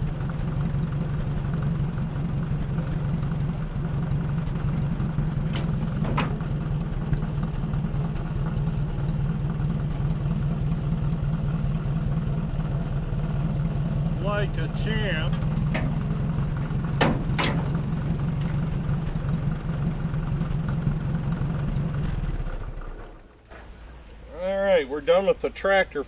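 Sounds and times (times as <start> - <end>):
tractor engine idling: 0.0 - 26.0
hydraulics lifting: 4.3 - 9.2, 13.8 - 19.3
sharp metal clanks: 15.3 - 16.0, 17.0 - 17.8.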